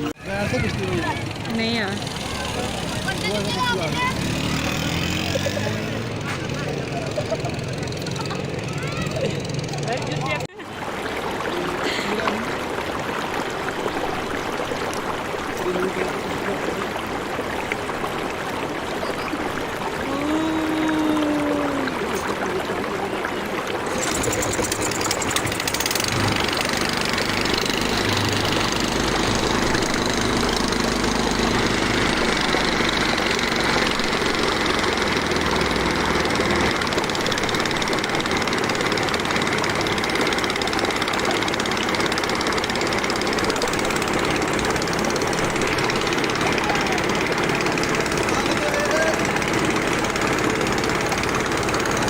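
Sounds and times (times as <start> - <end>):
motorboat engine running: 0.0 - 52.0
water rushing: 0.0 - 52.0
faint voices: 5.4 - 10.7, 45.2 - 51.2.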